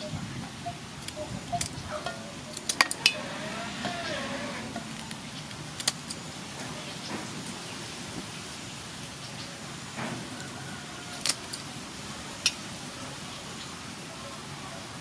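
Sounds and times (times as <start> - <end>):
scissors clicking cutting fish: 11.2 - 11.6.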